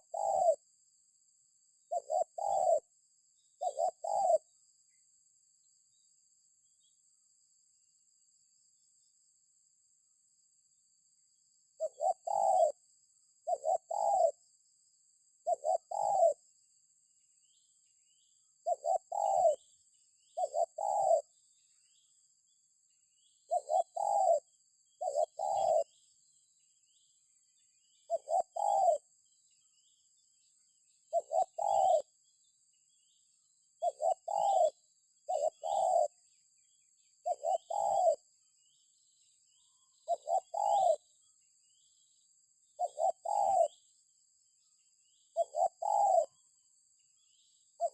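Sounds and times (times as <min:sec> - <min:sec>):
dove cooing: 0:00.0 - 0:00.6, 0:01.9 - 0:02.9, 0:03.6 - 0:04.5, 0:11.8 - 0:12.8, 0:13.4 - 0:14.4, 0:15.4 - 0:16.4, 0:18.6 - 0:21.3, 0:23.5 - 0:26.0, 0:28.1 - 0:29.1, 0:31.1 - 0:32.2, 0:33.8 - 0:36.2, 0:37.2 - 0:38.3, 0:40.0 - 0:41.1, 0:42.8 - 0:43.8, 0:45.3 - 0:46.4.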